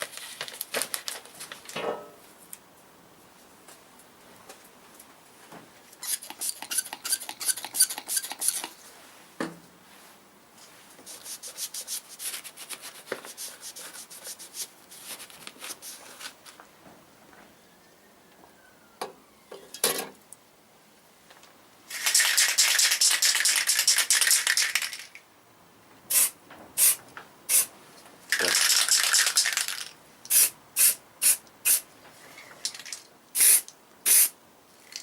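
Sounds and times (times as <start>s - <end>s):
sandpaper rubbing on metal: 6.0s - 8.7s, 11.1s - 16.0s.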